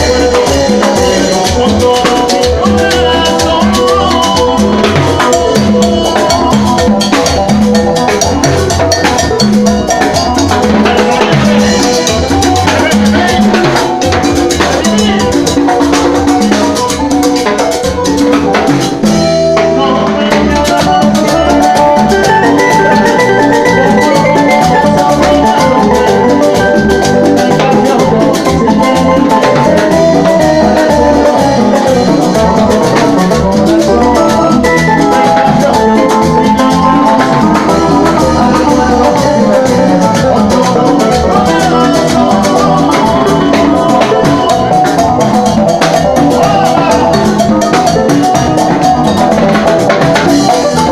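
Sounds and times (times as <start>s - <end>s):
live latin dance band: 0.0s - 50.9s.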